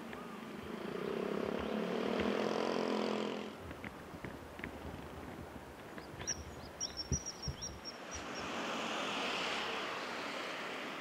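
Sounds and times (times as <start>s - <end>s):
rushing outdoor background: 0.0s - 11.0s
bird high-pitched calls: 6.0s - 8.5s.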